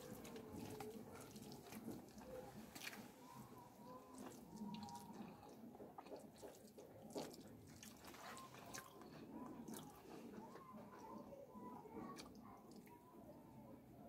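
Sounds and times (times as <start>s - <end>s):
fingers squishing through wet rice: 0.0s - 13.0s
person chewing with mouth clicks: 4.1s - 10.7s.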